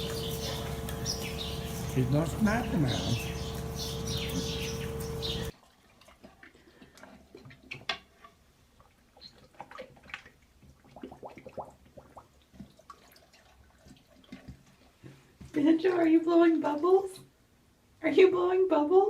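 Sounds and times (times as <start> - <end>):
loud steady hum: 0.0 - 5.5.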